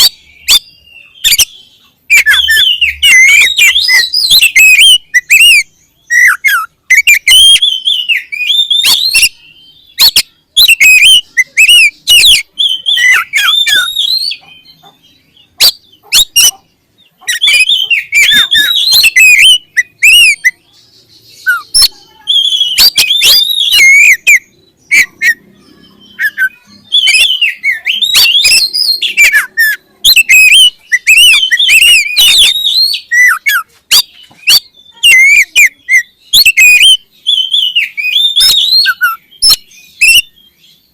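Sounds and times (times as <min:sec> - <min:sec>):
bird singing whistled phrases: 0:00.0 - 0:16.6, 0:17.2 - 0:40.9.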